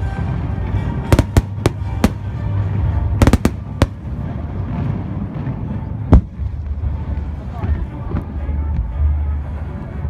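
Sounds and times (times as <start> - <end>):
fireworks cracking and banging: 1.1 - 5.0
low rumble: 1.2 - 7.4.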